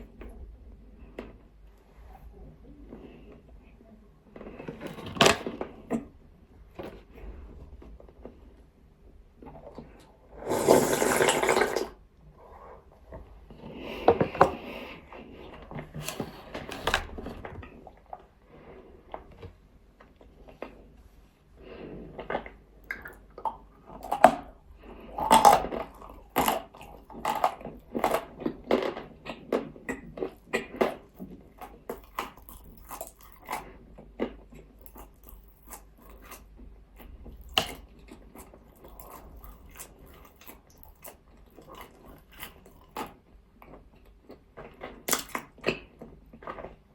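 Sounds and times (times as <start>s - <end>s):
crunching and chewing chalk: 21.7s - 46.9s.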